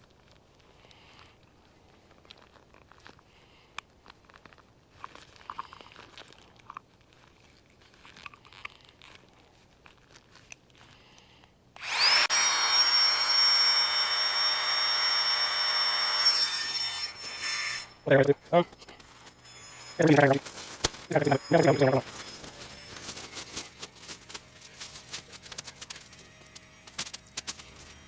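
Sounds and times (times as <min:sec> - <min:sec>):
small motor whining: 0:11.8 - 0:18.1, 0:18.7 - 0:28.0
faint rustling: 0:18.4 - 0:28.0.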